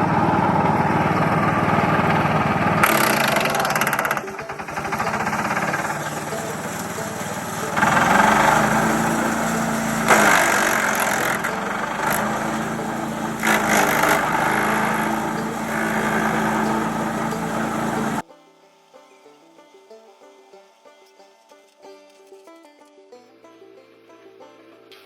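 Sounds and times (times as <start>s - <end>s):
branches crunching in chipper: 0.0s - 18.2s
wood chipper engine running: 0.0s - 18.2s.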